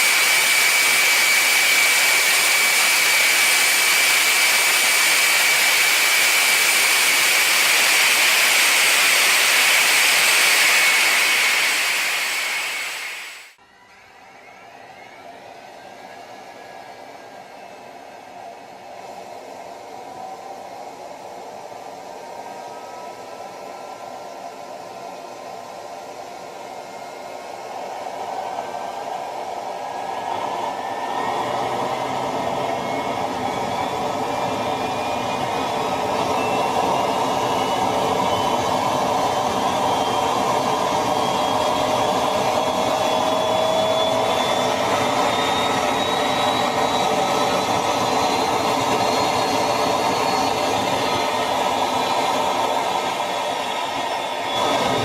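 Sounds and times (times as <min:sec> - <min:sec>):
jet engine rushing blast: 0:00.0 - 0:13.6, 0:29.8 - 0:55.0
jet turbine whine: 0:00.0 - 0:55.0.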